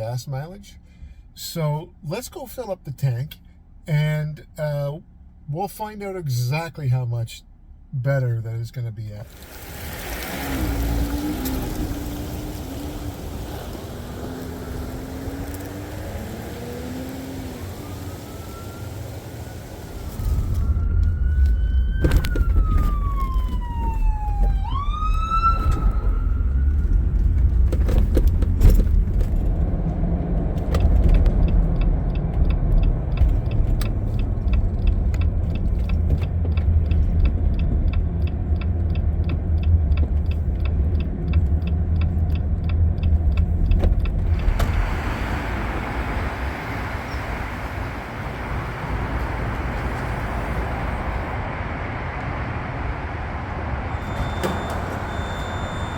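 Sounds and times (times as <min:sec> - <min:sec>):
vehicle engine and road noise: 0:00.0 - 0:55.9
road and wind noise hiss: 0:09.2 - 0:21.0, 0:27.5 - 0:55.9
siren wailing: 0:14.6 - 0:27.3.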